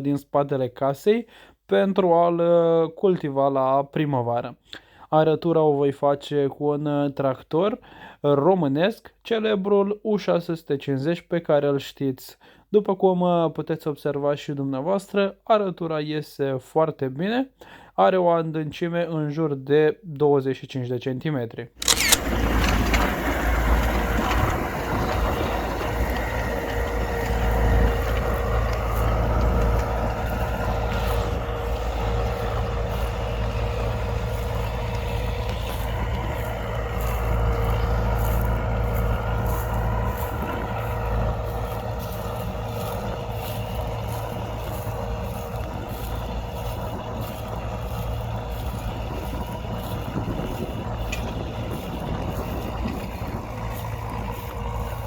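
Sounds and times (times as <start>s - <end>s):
tractor diesel engine under load: 21.8s - 55.0s.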